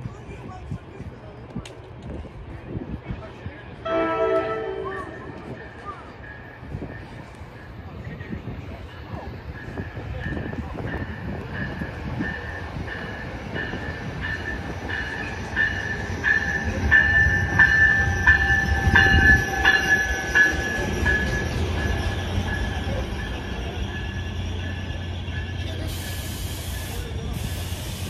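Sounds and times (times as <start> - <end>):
freight train rumbling past: 0.0 - 28.0
hiss: 25.8 - 28.0.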